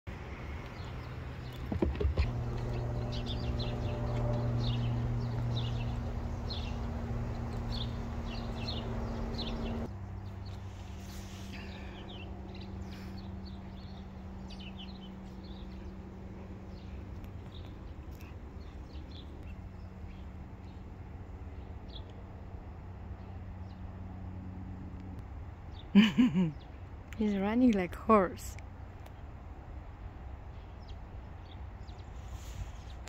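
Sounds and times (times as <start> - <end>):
small birds chirping: 0.1 - 22.5, 25.1 - 29.3, 30.5 - 33.0
steady low hum: 0.1 - 25.5.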